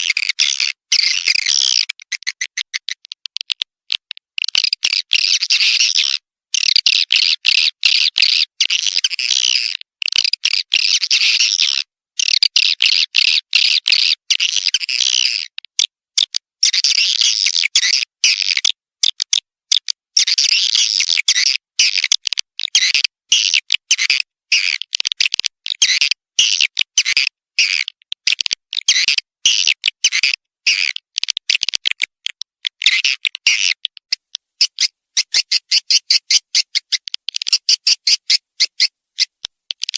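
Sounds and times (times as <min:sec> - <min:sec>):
high twittering bird chirps: 0:34.6 - 0:39.4.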